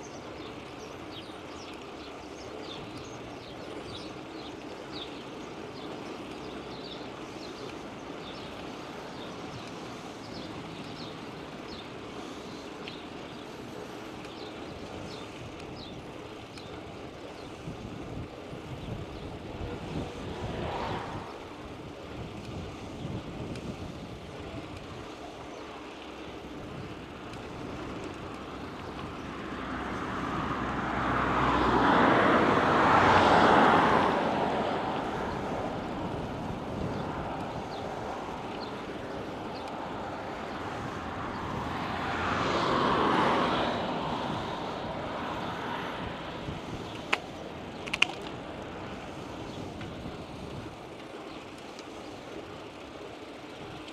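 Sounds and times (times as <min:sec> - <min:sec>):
road and wind noise: 0:00.0 - 0:53.9
vehicles passing: 0:00.0 - 0:53.9
sharp clicks: 0:46.9 - 0:48.5.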